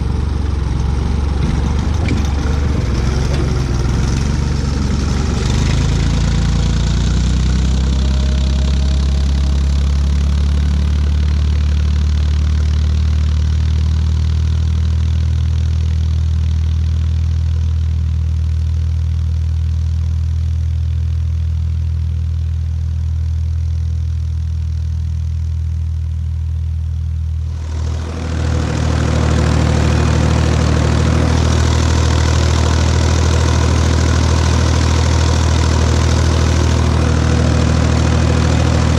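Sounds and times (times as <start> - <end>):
tractor engine running: 0.0 - 20.6, 26.5 - 38.9.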